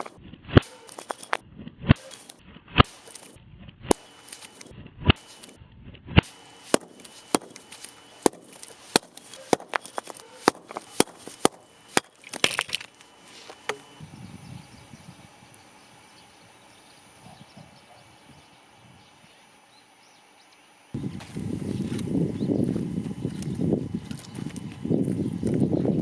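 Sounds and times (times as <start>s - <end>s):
firewood cracking and snapping: 6.7s - 13.7s.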